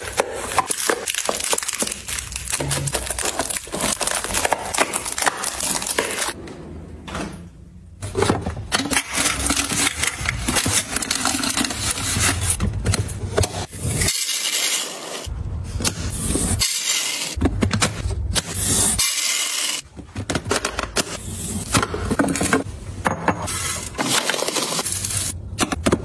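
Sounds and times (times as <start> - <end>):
handling packaging and containers: 0.0 - 6.4, 23.4 - 26.0.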